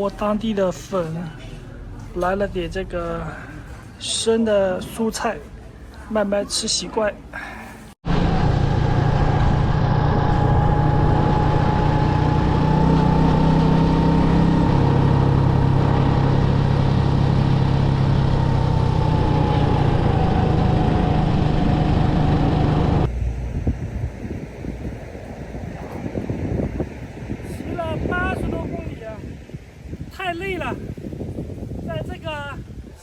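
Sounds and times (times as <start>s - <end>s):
motorcycle engine running: 8.0s - 26.6s.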